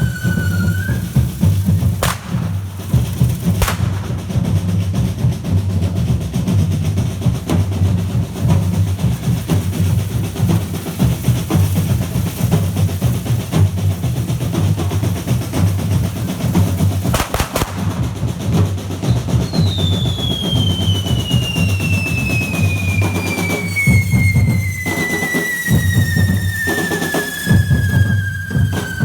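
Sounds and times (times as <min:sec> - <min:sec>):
drums beating rhythm: 0:00.0 - 0:29.0
sharp cracks: 0:02.0 - 0:04.7, 0:17.1 - 0:18.5.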